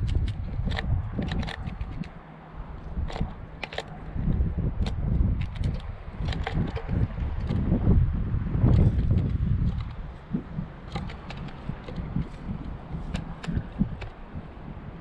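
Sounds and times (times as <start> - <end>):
low wind-like rumble: 0.0 - 15.0
sharp clicks and taps: 10.9 - 14.2.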